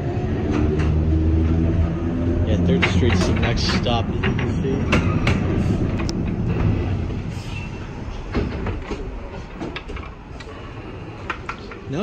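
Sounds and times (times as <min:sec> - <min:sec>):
streetcar wheels rumbling on rail: 0:00.0 - 0:12.0.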